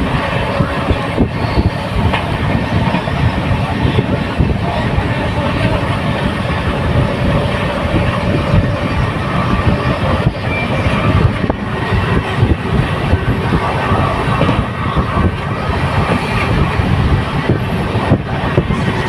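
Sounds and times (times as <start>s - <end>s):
train running on track: 0.0s - 19.0s.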